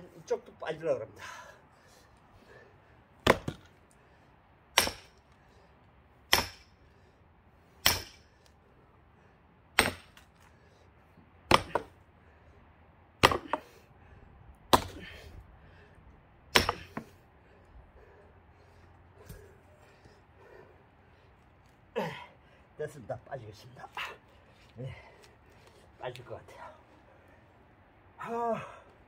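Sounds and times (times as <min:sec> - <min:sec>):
axe splitting log: 0:03.2 - 0:03.7, 0:04.7 - 0:05.2, 0:06.3 - 0:06.8, 0:07.8 - 0:08.3, 0:09.8 - 0:10.4, 0:11.5 - 0:12.0, 0:13.2 - 0:13.7, 0:14.7 - 0:15.2, 0:16.5 - 0:17.2.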